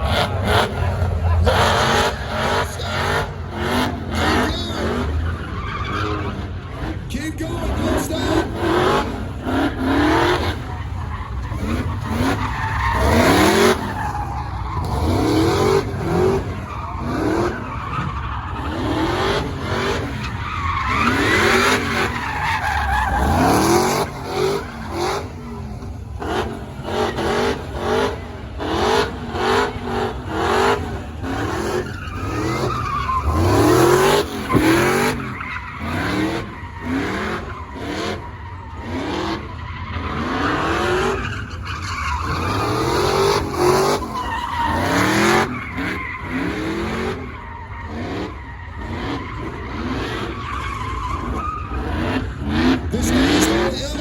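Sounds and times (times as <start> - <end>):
car engine revving: 0.0 - 54.0
tire screech: 0.0 - 54.0.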